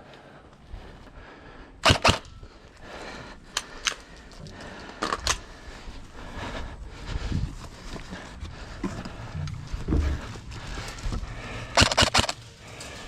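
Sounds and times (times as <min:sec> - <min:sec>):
airsoft gun shots: 0:01.8 - 0:02.3, 0:11.8 - 0:12.4.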